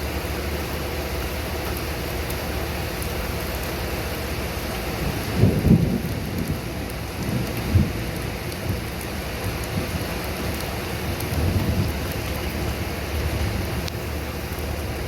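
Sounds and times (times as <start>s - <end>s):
rain falling: 0.0s - 15.0s
thunder rumbling: 5.0s - 15.0s.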